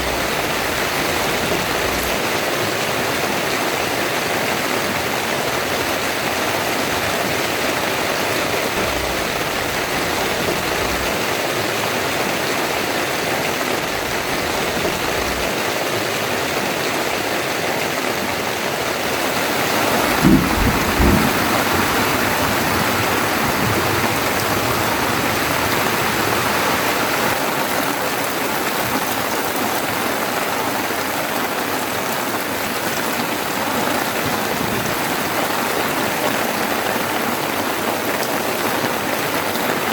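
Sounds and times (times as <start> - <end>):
heavy rain pouring: 0.0 - 39.9
low thuds: 19.8 - 26.6.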